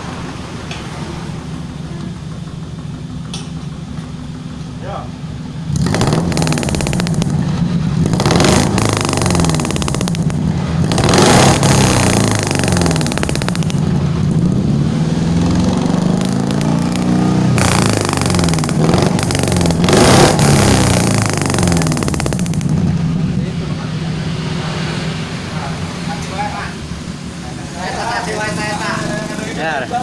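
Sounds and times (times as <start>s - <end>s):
car engine revving: 5.4s - 26.5s.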